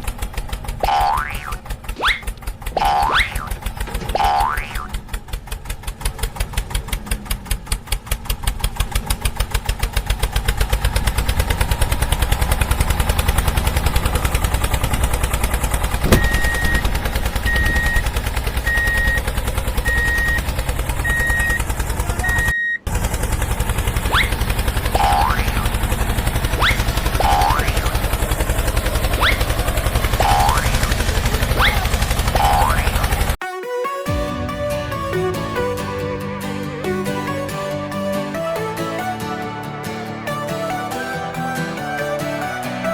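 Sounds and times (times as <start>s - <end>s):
engine chugging: 0.0s - 33.4s
repeated on-off beep: 16.0s - 22.9s.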